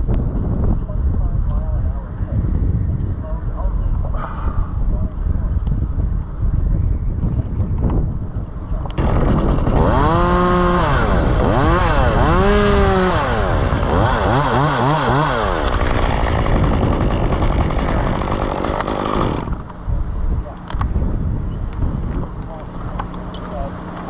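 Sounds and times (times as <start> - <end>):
chainsaw engine revving: 9.0 - 19.7.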